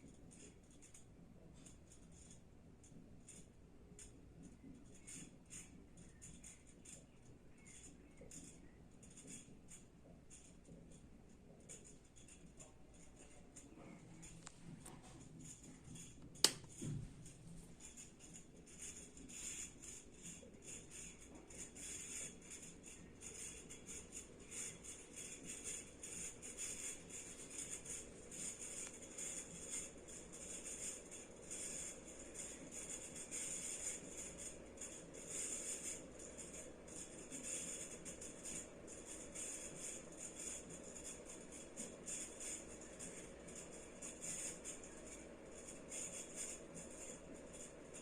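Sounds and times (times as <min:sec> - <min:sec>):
ceiling fan humming and ticking: 0:00.0 - 0:48.0
sharp click: 0:16.3 - 0:16.8.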